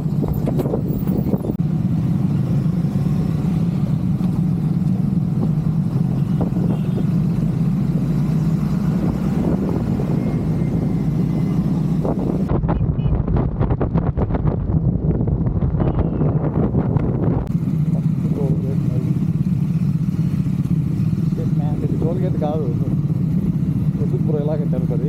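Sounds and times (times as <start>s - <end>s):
wind rushing over microphone: 0.0s - 1.6s, 8.6s - 18.6s
motorcycle engine cruising: 0.0s - 12.6s, 13.3s - 25.0s.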